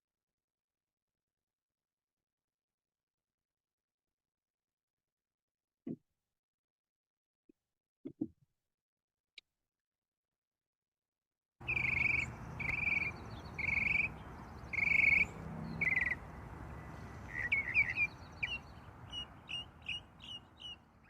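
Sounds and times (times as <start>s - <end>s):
bird singing buzzy trills: 11.6s - 21.0s
steady low background noise: 11.6s - 21.0s.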